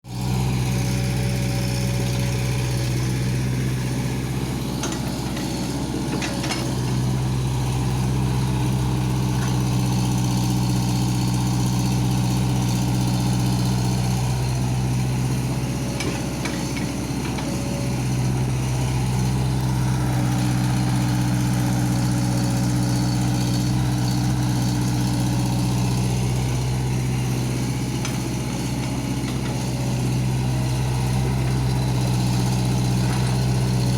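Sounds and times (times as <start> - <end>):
excavator engine drone: 0.1 - 33.9.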